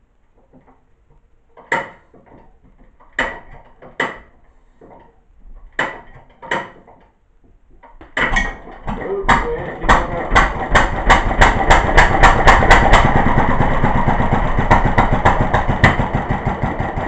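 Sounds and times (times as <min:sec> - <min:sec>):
engine turning metallic clacks: 0:08.2 - 0:17.0.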